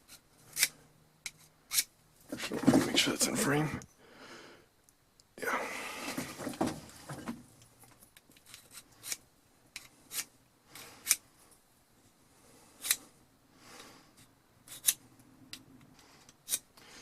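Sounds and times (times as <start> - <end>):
sharpening rod scraping metal: 1.3 - 1.9, 14.7 - 15.0.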